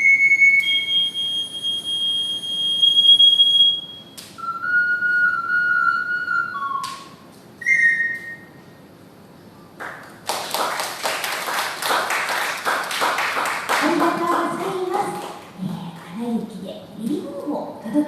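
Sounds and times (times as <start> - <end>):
ocarina melody: 0.0 - 8.7
audience applause: 9.8 - 15.4.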